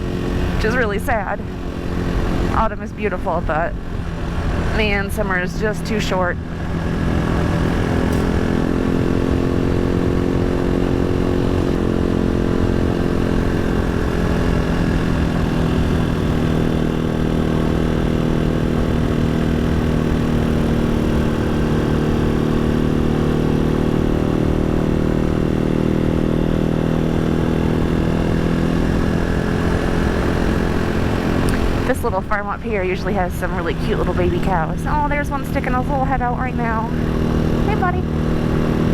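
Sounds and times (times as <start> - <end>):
motorcycle engine running: 0.0 - 38.9
wind and road rumble: 0.0 - 38.9.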